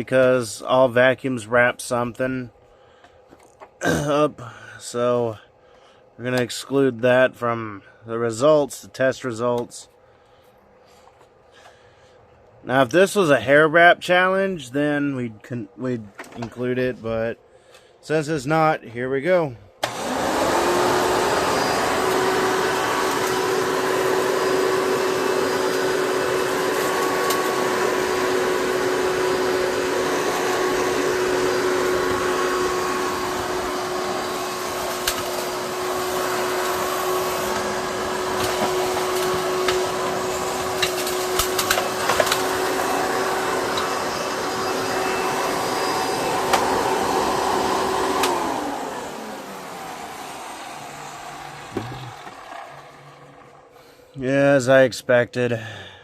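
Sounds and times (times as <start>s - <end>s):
vacuum cleaner motor humming: 19.8s - 54.3s
vacuum motor winding down: 19.8s - 54.3s
debris clicking in vacuum: 38.3s - 42.6s.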